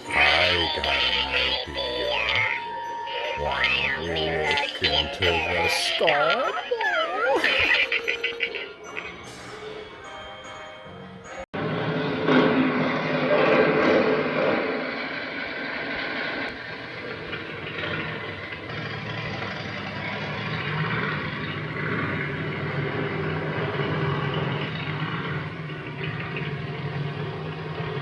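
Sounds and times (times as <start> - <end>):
motorcycle engines idling: 16.6 - 28.0.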